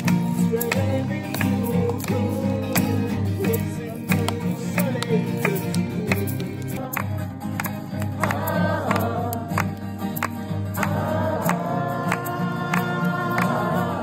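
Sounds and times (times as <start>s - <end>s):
acoustic guitar strumming: 0.0s - 14.0s
person singing: 0.4s - 7.4s, 10.8s - 14.0s.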